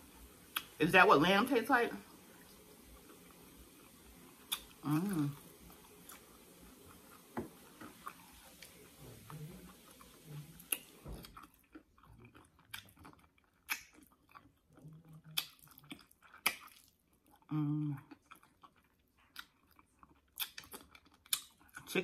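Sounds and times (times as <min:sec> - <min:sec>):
wet chewing clicks and smacks: 0:02.9 - 0:04.8, 0:05.7 - 0:22.0
person humming: 0:04.8 - 0:05.4, 0:17.5 - 0:18.0.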